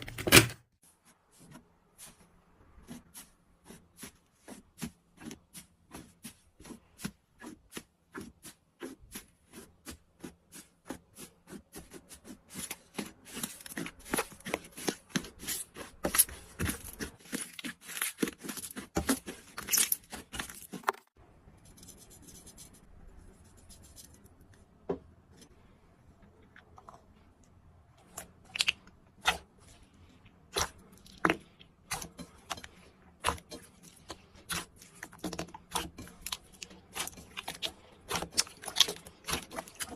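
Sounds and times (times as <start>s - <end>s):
slime clicking and crackling: 34.0s - 39.9s.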